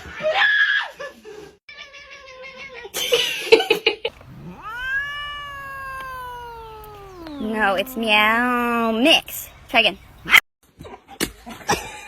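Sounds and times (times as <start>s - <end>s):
cat meowing: 4.1s - 9.4s.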